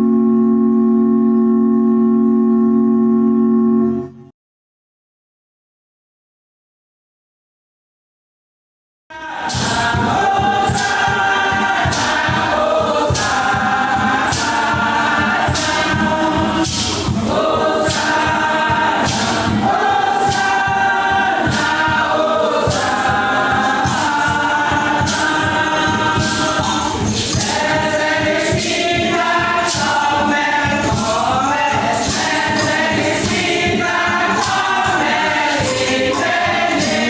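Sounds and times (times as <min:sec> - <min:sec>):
choir singing gospel song: 0:09.1 - 0:37.0
percussion beat: 0:09.2 - 0:37.0.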